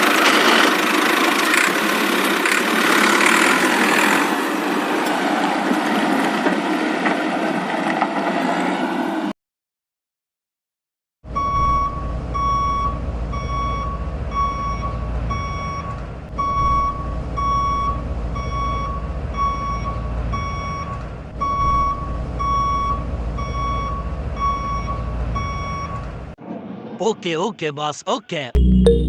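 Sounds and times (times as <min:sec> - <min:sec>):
truck reversing alarm beeping: 0:11.3 - 0:26.2, 0:28.6 - 0:29.0.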